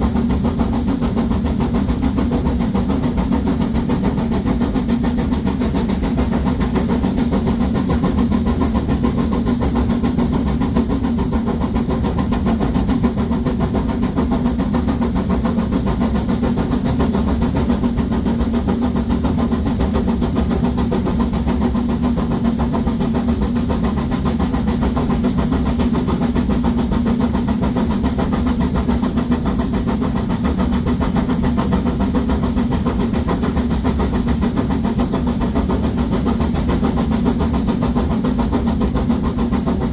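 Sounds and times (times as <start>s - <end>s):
steam locomotive exhaust beating: 0.0s - 39.9s.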